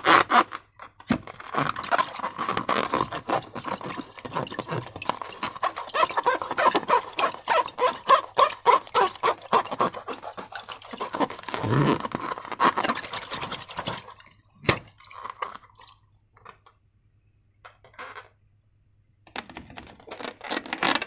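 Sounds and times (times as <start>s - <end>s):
slime squelching: 1.3s - 16.0s.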